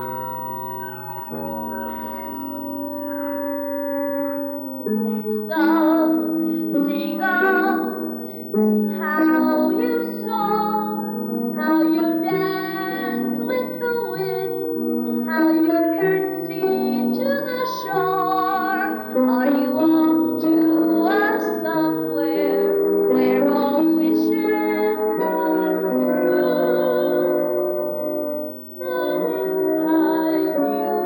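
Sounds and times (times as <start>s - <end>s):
pit orchestra accompaniment: 0.0s - 6.0s
woman singing a slow ballad: 5.5s - 8.2s, 8.9s - 11.0s, 11.6s - 14.6s, 15.2s - 27.4s, 28.8s - 31.0s.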